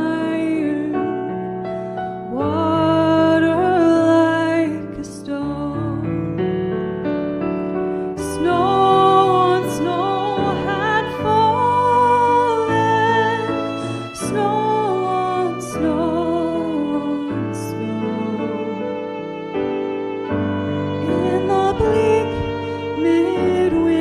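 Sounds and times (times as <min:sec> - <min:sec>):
piano accompaniment: 0:00.0 - 0:24.0
woman singing with vibrato: 0:08.2 - 0:18.8, 0:21.0 - 0:24.0.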